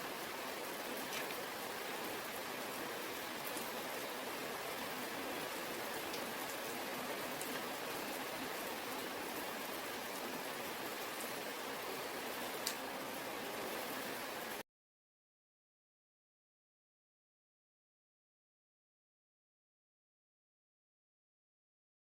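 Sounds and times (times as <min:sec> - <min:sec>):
heavy rain falling: 0:00.0 - 0:14.6.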